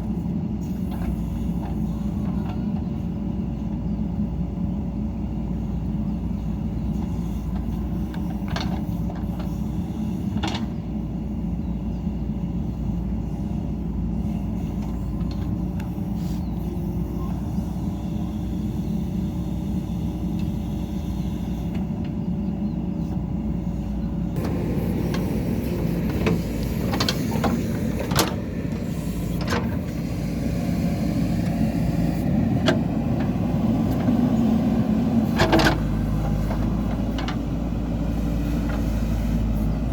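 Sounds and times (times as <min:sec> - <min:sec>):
diesel engine running: 0:00.0 - 0:39.9
sharp knocks and clanks: 0:24.4 - 0:29.9.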